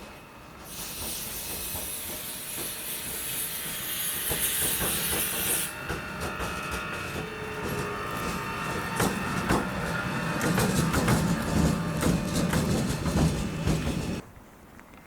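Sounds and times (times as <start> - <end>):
train hissing loudly: 0.0 - 14.2
wheels clicking on rail: 0.6 - 14.2.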